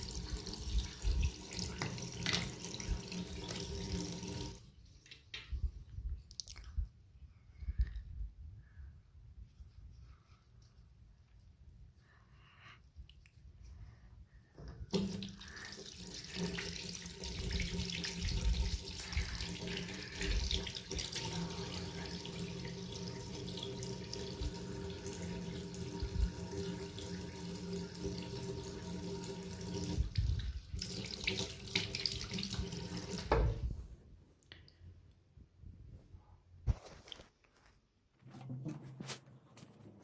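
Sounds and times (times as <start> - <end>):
tap water running into sink: 0.0 - 5.5, 14.9 - 33.7.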